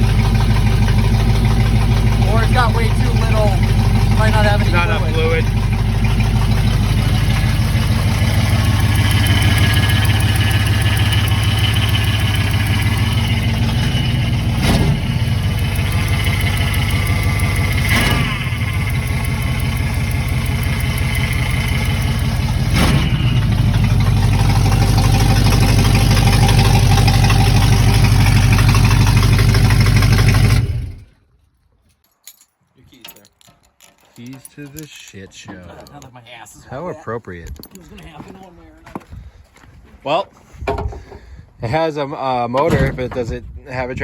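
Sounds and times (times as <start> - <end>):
sharp engine knocks: 0.0 - 30.6
pickup truck engine idling: 0.0 - 31.0.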